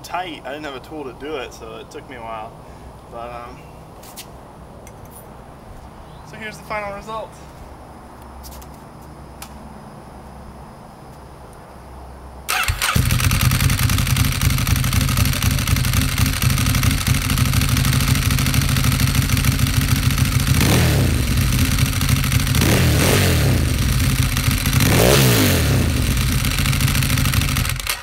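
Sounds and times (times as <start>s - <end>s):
motorcycle engine starting and revving: 12.5s - 28.0s.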